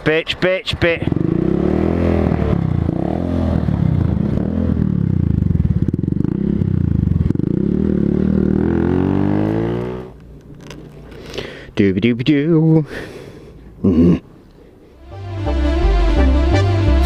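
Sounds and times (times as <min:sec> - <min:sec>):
motorcycle engine running: 0:01.0 - 0:09.8.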